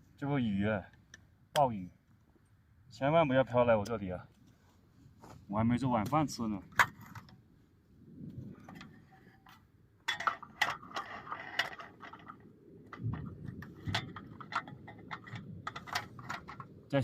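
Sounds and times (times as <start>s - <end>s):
camp cooking gear clicking and clinking: 6.7s - 7.4s, 8.5s - 17.0s.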